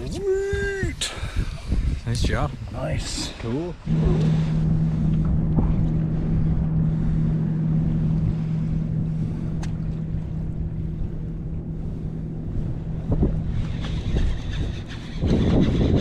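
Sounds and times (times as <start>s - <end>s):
wind rumbling on microphone: 0.0s - 16.0s
boat motor humming: 2.6s - 16.0s.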